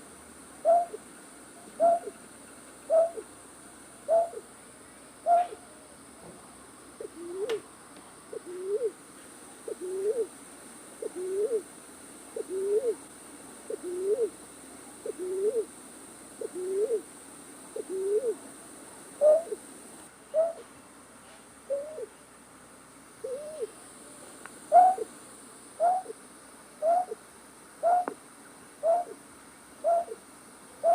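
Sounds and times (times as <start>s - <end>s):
night bird hooting: 0.6s - 1.0s, 1.7s - 3.3s, 4.0s - 4.5s, 5.2s - 5.9s, 7.0s - 7.6s, 8.3s - 9.0s, 9.7s - 10.3s, 11.0s - 11.7s, 12.4s - 13.0s, 13.7s - 14.4s, 15.0s - 15.7s, 16.4s - 17.1s, 17.8s - 18.4s, 19.2s - 19.7s, 20.3s - 20.7s, 21.7s - 22.1s, 23.2s - 23.8s, 24.7s - 25.1s, 25.8s - 26.2s, 26.8s - 27.2s, 27.8s - 28.2s, 28.8s - 29.2s, 29.8s - 30.2s.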